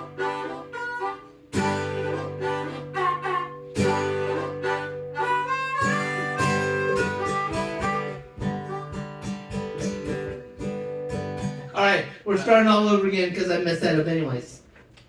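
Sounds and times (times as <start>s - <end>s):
fiddle melody: 0.0s - 11.3s
strummed guitar chords: 0.0s - 11.8s.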